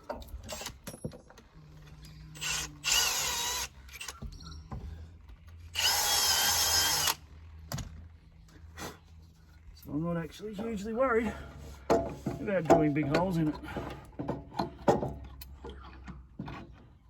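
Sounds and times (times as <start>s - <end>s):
power drill whining: 2.4s - 4.3s, 5.7s - 7.2s.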